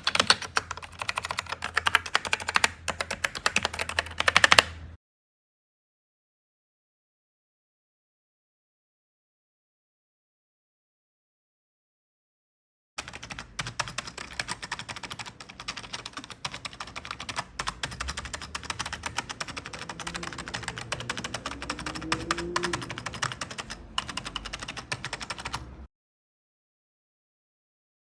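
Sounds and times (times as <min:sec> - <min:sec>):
fast typing on keyboard: 0:00.0 - 0:04.9, 0:13.0 - 0:25.7.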